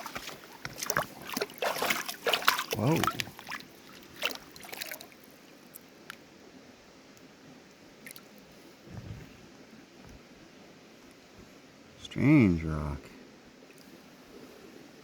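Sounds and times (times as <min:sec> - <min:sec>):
river water trickling: 0:00.0 - 0:08.8.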